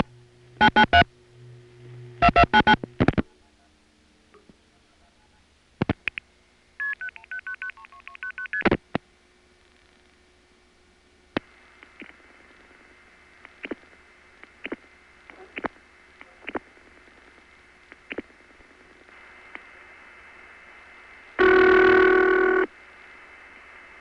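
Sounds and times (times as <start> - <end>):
loud buzzy tone: 0.0 - 3.8, 21.4 - 22.7.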